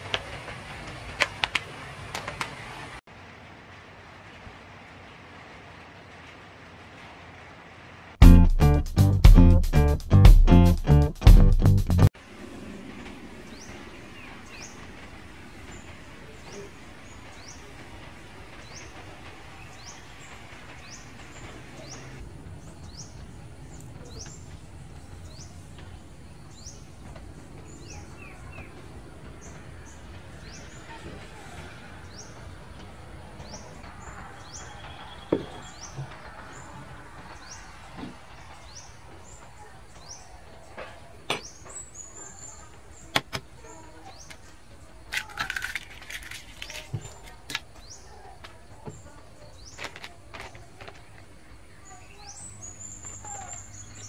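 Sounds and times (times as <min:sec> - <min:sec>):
steady background hum: 0:12.2 - 0:54.0.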